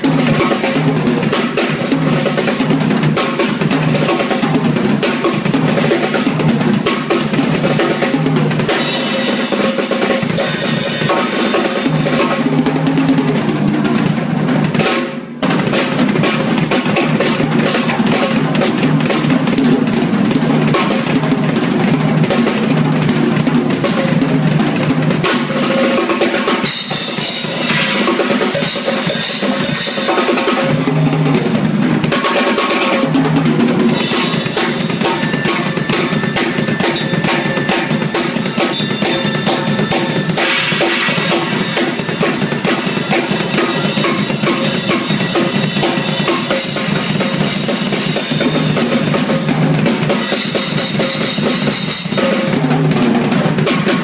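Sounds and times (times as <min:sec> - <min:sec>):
drum kit groove: 0:00.0 - 0:54.0
cymbal wash: 0:34.0 - 0:48.5.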